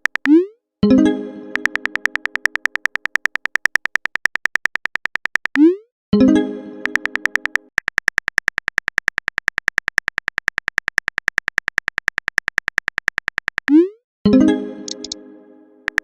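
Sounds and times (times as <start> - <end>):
fast typing clicks: 0.0 - 0.3, 1.5 - 5.6, 6.8 - 13.8.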